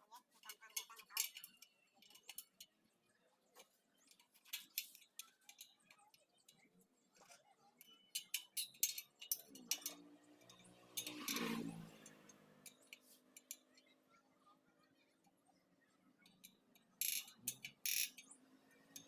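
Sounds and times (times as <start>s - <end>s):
light metallic clicks on spokes: 4.1s - 14.0s.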